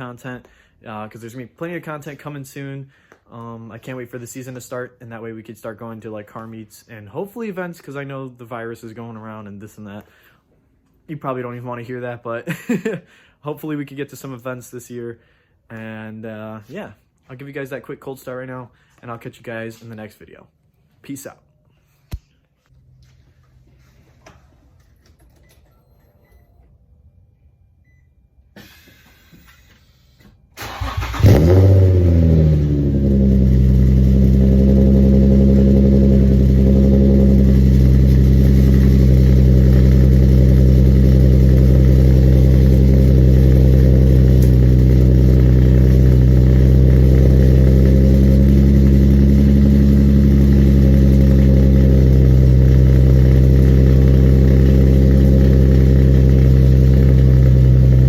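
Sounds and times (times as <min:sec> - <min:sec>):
engine cranking and starting: 0:30.6 - 0:33.2
car engine idling: 0:30.6 - 0:58.0.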